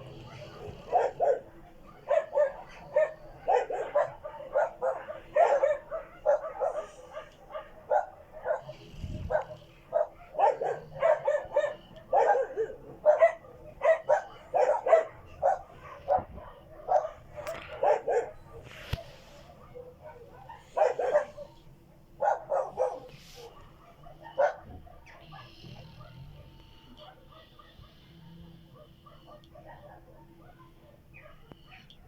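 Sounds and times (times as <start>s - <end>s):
dog barking sharply: 0.9s - 8.7s, 9.3s - 21.6s, 22.2s - 26.2s.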